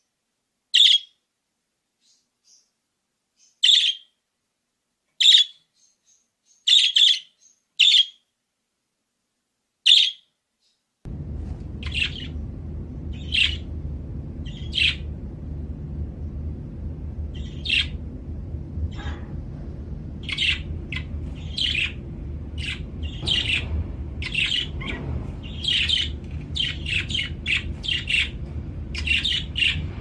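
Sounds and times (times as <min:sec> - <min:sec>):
budgerigar chirping: 0:00.8 - 0:01.1, 0:05.2 - 0:05.6, 0:06.7 - 0:08.2, 0:09.9 - 0:10.2
low background rumble: 0:11.1 - 0:30.0.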